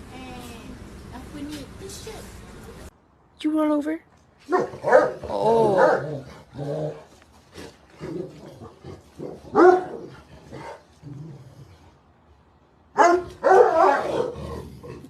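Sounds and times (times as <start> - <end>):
dog barking and whining: 4.5 - 7.1, 8.0 - 10.9, 13.0 - 15.0.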